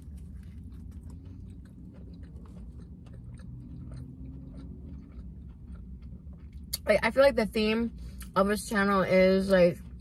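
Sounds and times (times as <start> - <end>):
close-up chewing: 0.0 - 6.9, 9.4 - 10.0.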